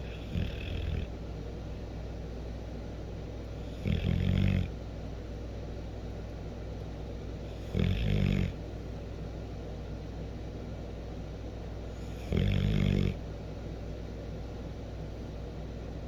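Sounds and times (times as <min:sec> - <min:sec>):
dog snoring: 0:00.0 - 0:01.2, 0:03.6 - 0:04.8, 0:07.4 - 0:08.7, 0:11.9 - 0:13.3.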